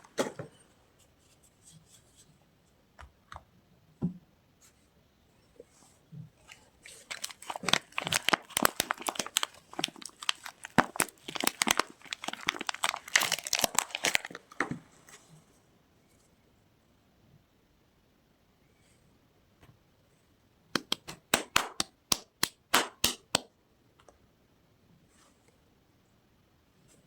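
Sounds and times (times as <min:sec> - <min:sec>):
packaging crackling and tearing: 0:06.8 - 0:14.6.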